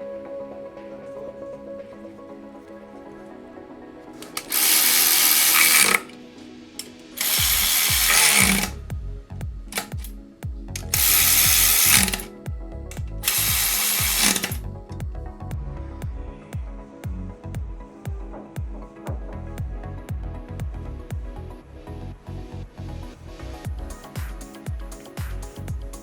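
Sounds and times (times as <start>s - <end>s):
background music: 0.0s - 26.0s
ratchet clicking: 4.2s - 6.1s, 7.2s - 8.8s, 9.7s - 10.1s, 10.8s - 12.3s, 13.2s - 14.6s.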